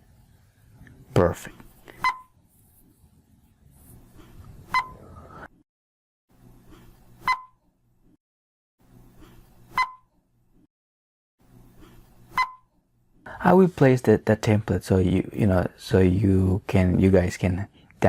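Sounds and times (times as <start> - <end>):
short electronic beeps: 4.7 - 5.0.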